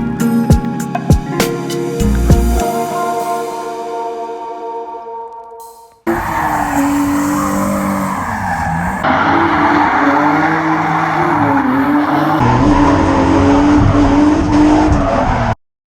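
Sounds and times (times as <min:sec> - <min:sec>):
tyres squealing: 0:06.1 - 0:12.4
car engine revving high: 0:06.1 - 0:15.4.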